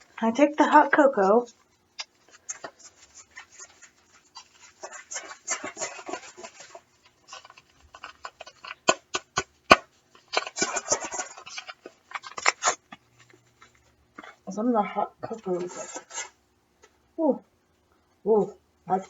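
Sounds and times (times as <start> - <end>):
paper packet crinkling and tearing: 1.9 - 13.8, 15.4 - 16.4.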